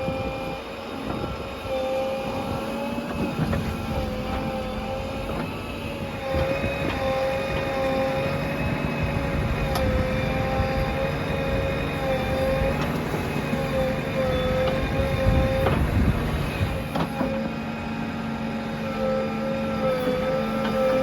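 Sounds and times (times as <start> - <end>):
diesel engine rumbling: 0.0 - 21.0
wavering machine whine: 0.0 - 21.0.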